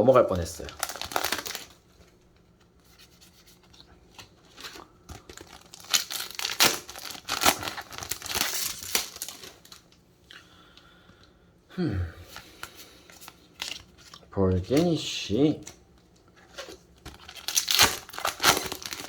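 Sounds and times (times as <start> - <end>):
wrapper tearing and crinkling: 0.3 - 1.8, 4.5 - 9.9, 16.4 - 19.0.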